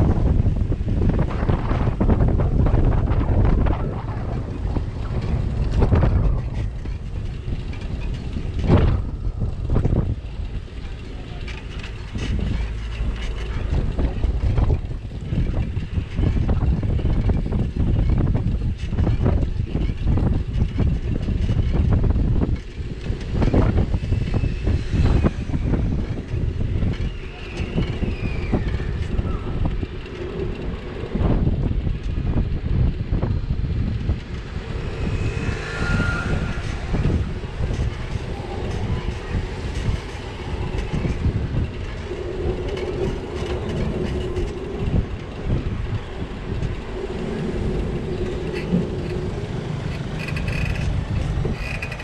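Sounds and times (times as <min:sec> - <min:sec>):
street traffic noise: 0:00.0 - 0:52.0
wind buffeting microphone: 0:00.0 - 0:52.0.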